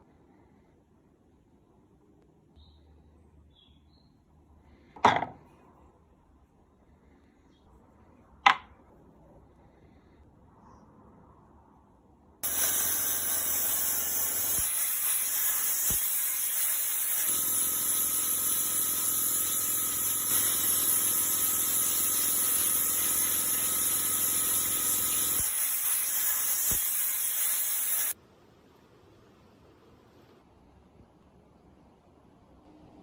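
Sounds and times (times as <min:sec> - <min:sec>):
compressed air tool hissing: 0:12.4 - 0:28.2.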